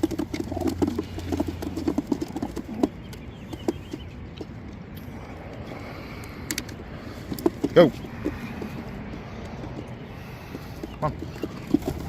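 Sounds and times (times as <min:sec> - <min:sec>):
pigeons cooing: 0:00.0 - 0:04.2, 0:05.0 - 0:12.0.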